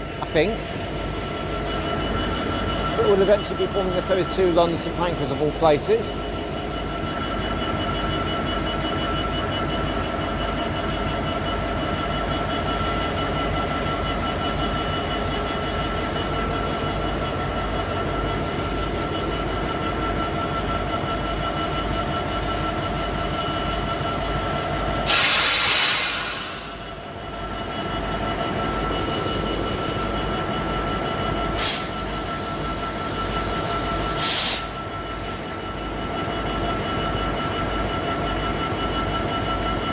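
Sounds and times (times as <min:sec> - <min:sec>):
diesel train engine idling: 0:00.0 - 0:39.9
compressed air hiss: 0:25.0 - 0:27.0, 0:31.6 - 0:34.8.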